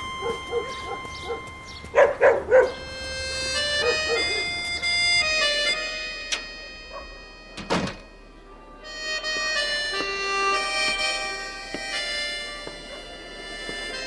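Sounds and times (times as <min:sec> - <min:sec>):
background music: 0:00.0 - 0:14.0
dog barking: 0:00.2 - 0:02.8, 0:03.8 - 0:04.5, 0:06.9 - 0:07.2, 0:12.9 - 0:13.1.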